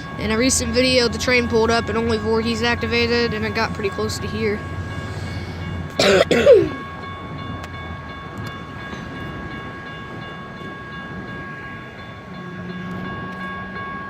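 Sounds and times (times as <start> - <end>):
road traffic passing: 0.0 - 8.0
crossing warning bells ringing: 0.0 - 14.0.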